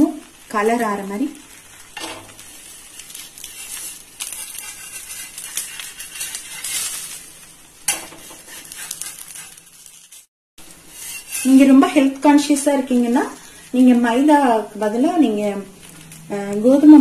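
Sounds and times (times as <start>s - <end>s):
flatbread sizzling on griddle: 0.0s - 17.0s
metal spatula scraping griddle: 1.9s - 10.3s, 10.9s - 12.0s.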